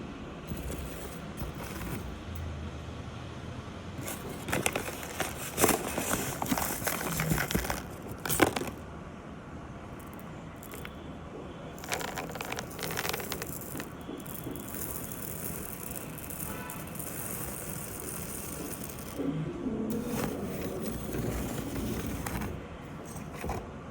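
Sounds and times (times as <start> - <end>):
diamonds clicking and rattling: 4.0 - 8.8, 10.0 - 11.0, 11.8 - 19.2.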